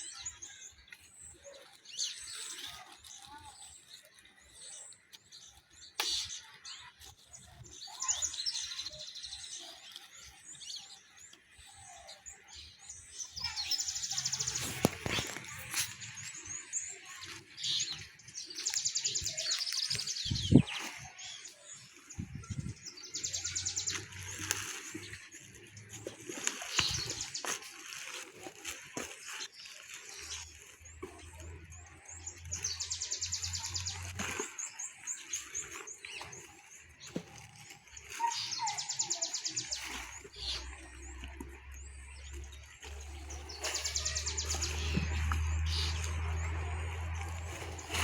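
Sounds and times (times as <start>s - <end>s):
birds chirping and trilling: 0.0s - 48.0s.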